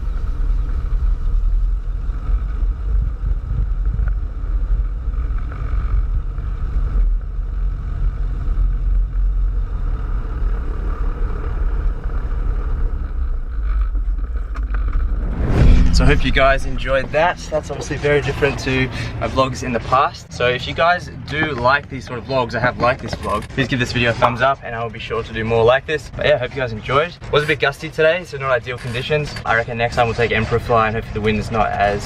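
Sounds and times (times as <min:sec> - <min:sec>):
aircraft engine droning: 0:07.4 - 0:23.0.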